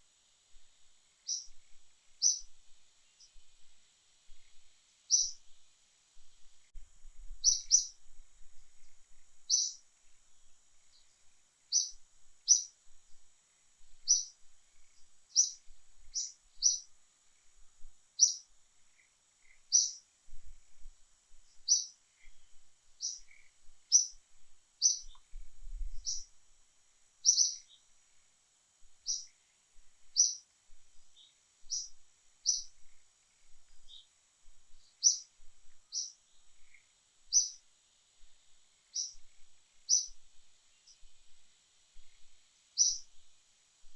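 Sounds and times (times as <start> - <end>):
bird chirping: 1.2 - 3.4, 4.4 - 5.4, 7.4 - 8.0, 9.5 - 9.8, 10.8 - 12.8, 14.0 - 16.9, 18.2 - 20.0, 21.5 - 24.2, 24.8 - 26.3, 27.2 - 27.9, 29.0 - 29.4, 30.1 - 30.4, 31.1 - 34.1, 34.7 - 37.6, 38.9 - 39.3, 39.9 - 41.1, 42.8 - 43.2.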